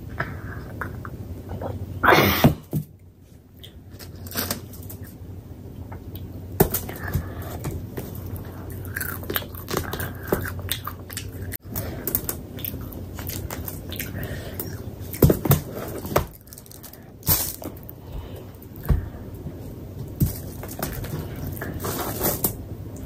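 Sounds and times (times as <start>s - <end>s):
person chewing with mouth smacks: 6.1s - 16.1s
rustling: 11.6s - 22.6s.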